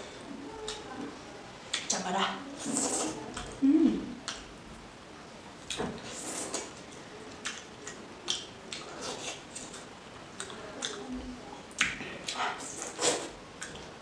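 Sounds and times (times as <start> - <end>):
chewing and lip smacks: 5.6 - 11.1, 11.7 - 13.9.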